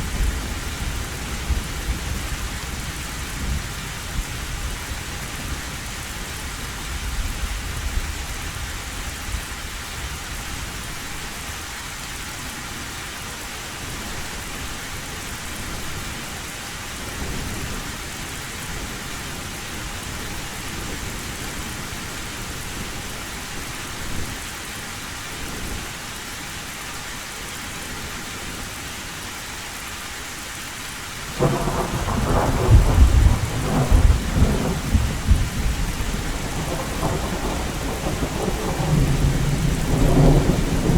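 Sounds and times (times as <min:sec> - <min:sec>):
heavy rain on a tin roof: 0:00.0 - 0:40.9
distant thunder rumbling: 0:31.3 - 0:40.9
loud thunderclap: 0:31.4 - 0:40.9.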